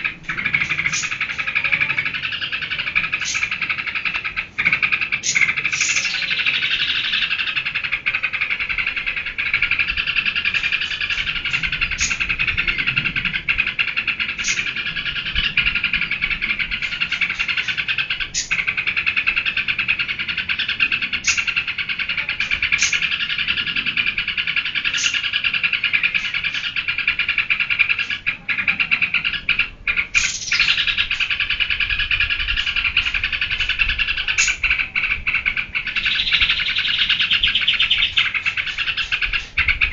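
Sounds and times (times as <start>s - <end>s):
bird singing fast chatter: 0.0s - 39.9s.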